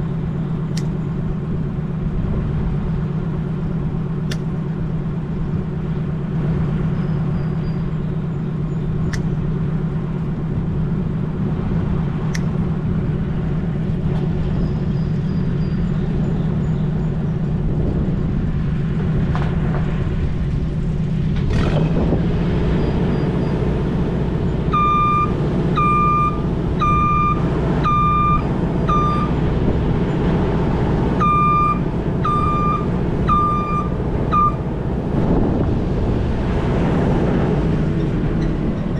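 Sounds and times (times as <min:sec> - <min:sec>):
vehicle engine running: 0:00.0 - 0:38.9
reversing alarm beeping: 0:24.7 - 0:29.4, 0:31.1 - 0:34.9.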